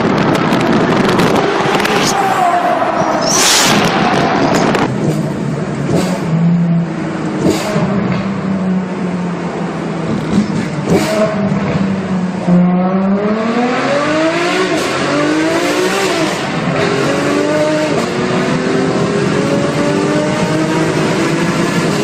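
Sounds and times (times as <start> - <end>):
supercar engine accelerating: 0.0 - 22.0.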